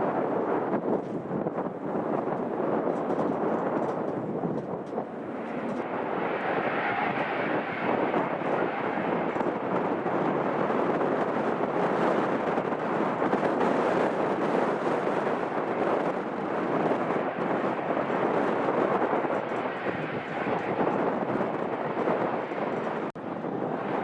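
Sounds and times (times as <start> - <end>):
jet engines running: 0.0 - 24.0.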